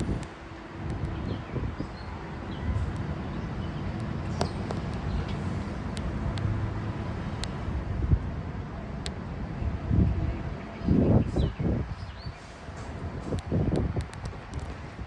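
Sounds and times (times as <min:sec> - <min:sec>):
sharp clicks: 0:00.0 - 0:01.4, 0:03.9 - 0:06.6, 0:13.2 - 0:15.0
wind noise on microphone: 0:00.0 - 0:15.0.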